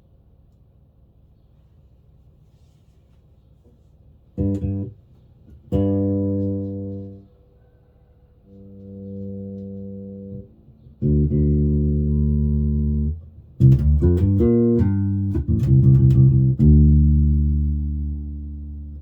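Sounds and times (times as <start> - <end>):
plucked bass run: 4.4 - 7.2, 8.5 - 19.0
bass guitar notes: 4.4 - 7.3, 8.5 - 19.0.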